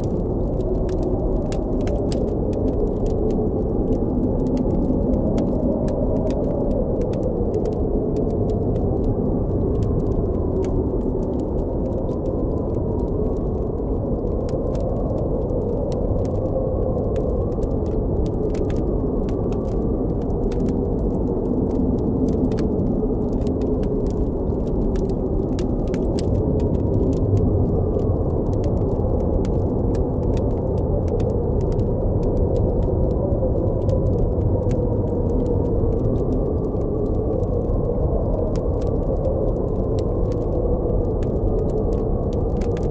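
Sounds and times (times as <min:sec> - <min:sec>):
campfire crackling and popping: 0:00.0 - 0:42.9.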